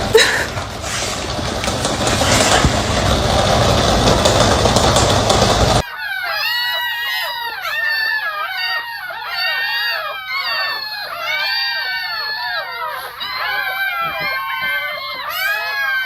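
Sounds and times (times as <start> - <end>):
loud noise: 0.0 - 5.8
dogs whining and yelping: 0.0 - 16.0.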